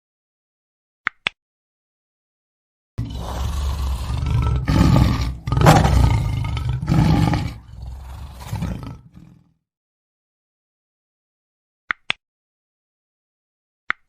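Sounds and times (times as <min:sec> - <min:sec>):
lion roaring: 0:03.0 - 0:09.4.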